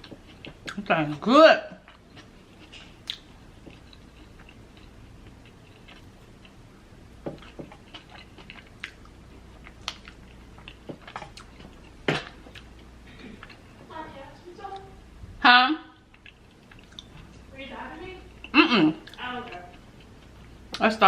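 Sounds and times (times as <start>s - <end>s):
mouth chewing food: 0.0s - 13.9s, 16.0s - 17.4s.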